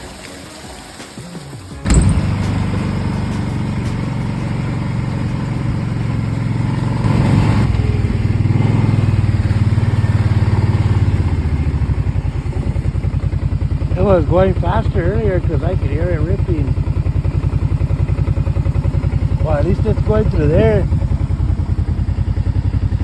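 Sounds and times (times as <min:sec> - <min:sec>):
small engine idling: 0:01.6 - 0:23.0.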